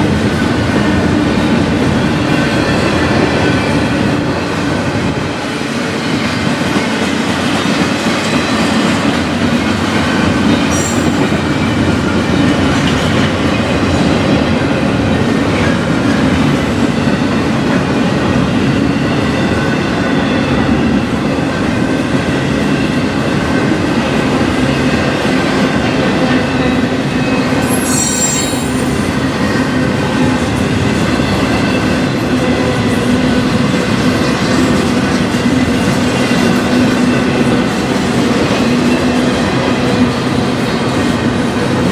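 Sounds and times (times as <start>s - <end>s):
freight train cars rumbling: 0.0s - 41.9s
faint wheel squeal: 27.6s - 29.0s
high-pitched screech: 27.6s - 29.1s.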